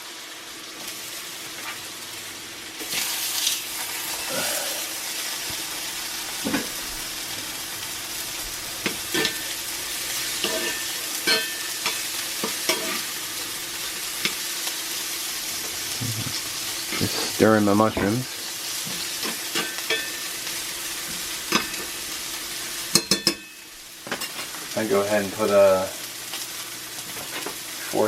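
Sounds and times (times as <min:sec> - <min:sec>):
meat sizzling in a pan: 0:00.0 - 0:28.0
utensil clinking and scraping pan: 0:08.8 - 0:13.1, 0:18.9 - 0:20.3.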